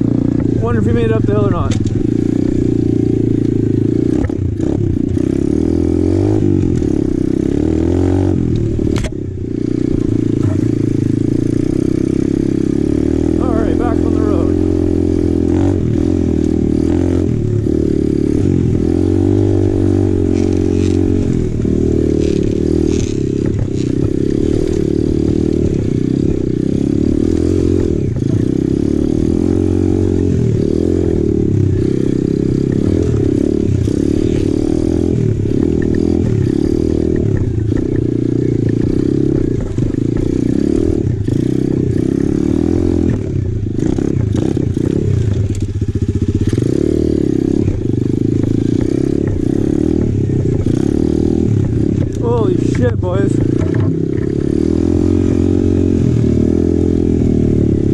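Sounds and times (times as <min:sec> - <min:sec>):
motorbike engine revving: 0:00.0 - 0:57.9.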